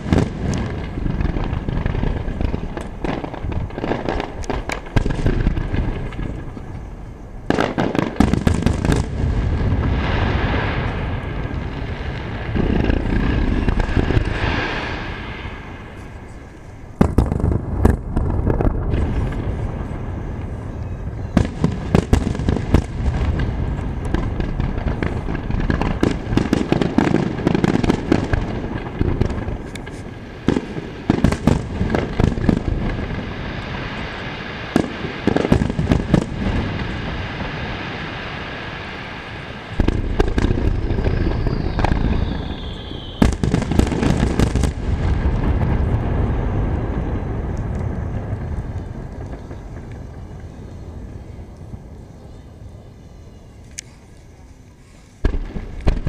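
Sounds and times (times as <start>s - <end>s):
fireworks bangs: 0.0s - 52.1s, 54.8s - 56.0s
continuous rumble: 15.4s - 33.4s, 43.4s - 56.0s
falling whistle: 40.9s - 43.4s.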